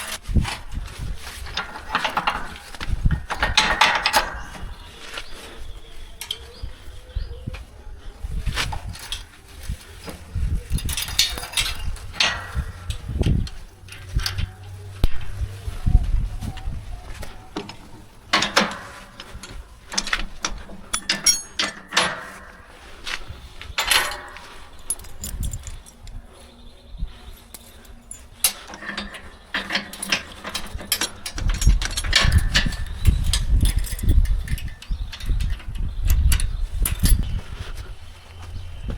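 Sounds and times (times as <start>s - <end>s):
mechanical clanks and rattles: 0.0s - 7.6s, 8.2s - 38.9s
low rumble: 10.3s - 18.3s.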